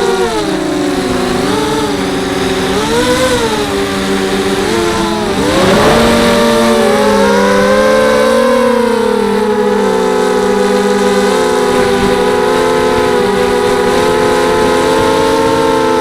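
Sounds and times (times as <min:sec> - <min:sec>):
quadcopter motors whining: 0:00.0 - 0:16.0
rush of air noise: 0:00.2 - 0:13.0.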